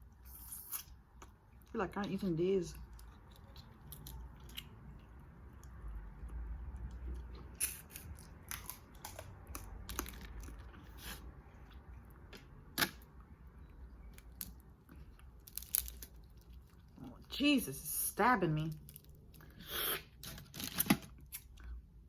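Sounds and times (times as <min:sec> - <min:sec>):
chewing: 0:02.8 - 0:12.0
crab shell cracking: 0:15.4 - 0:16.6.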